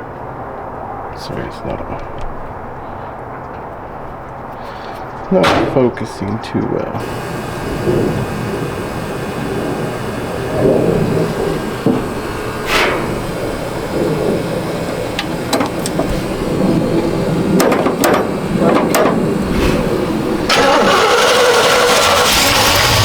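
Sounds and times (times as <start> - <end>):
pickup engine running roughly: 7.0 - 23.0.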